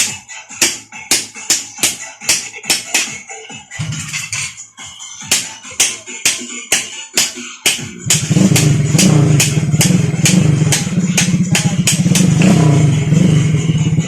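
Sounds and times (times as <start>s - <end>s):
electronic music beat: 0.0s - 14.0s
motorcycle engine running: 8.0s - 14.0s.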